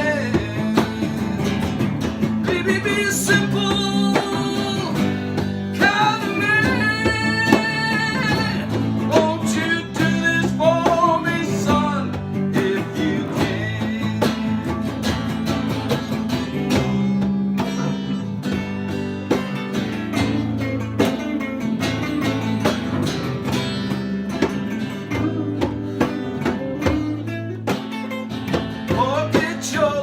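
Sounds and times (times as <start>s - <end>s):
sustained bass notes: 0.0s - 27.7s
band playing instrumental: 0.0s - 30.0s
guitar: 0.0s - 30.0s
steady drum beat: 0.0s - 30.0s.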